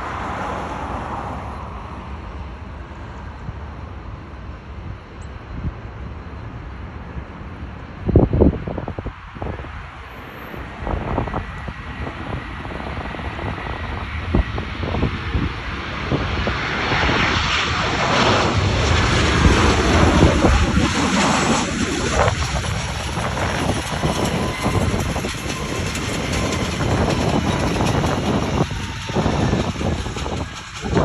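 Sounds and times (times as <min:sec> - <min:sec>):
jet engines roaring: 0:07.3 - 0:31.0
wind buffeting microphone: 0:08.0 - 0:31.0.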